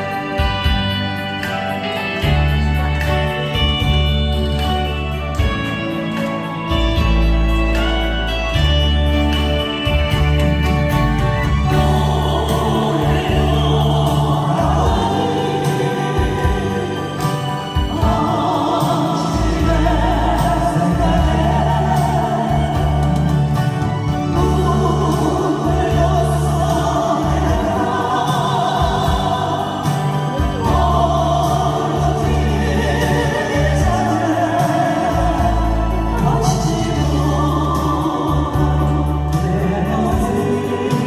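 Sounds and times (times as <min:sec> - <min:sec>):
live band playing a ballad: 0:00.0 - 0:41.0.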